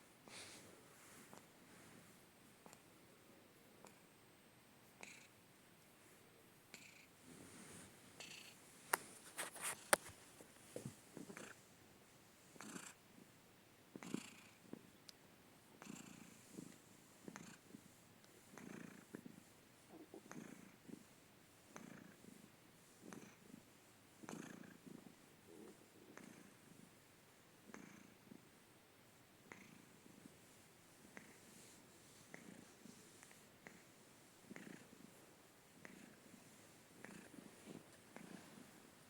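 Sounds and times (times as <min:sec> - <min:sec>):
cat purring: 0:05.0 - 0:05.4, 0:06.7 - 0:10.0, 0:10.6 - 0:11.6, 0:12.4 - 0:15.0, 0:15.8 - 0:39.0.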